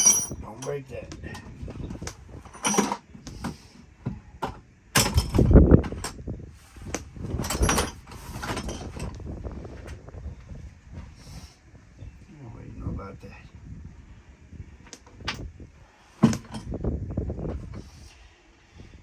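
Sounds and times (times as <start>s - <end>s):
hand tools clanking on metal: 0.0s - 1.5s, 2.5s - 3.6s, 7.4s - 9.1s.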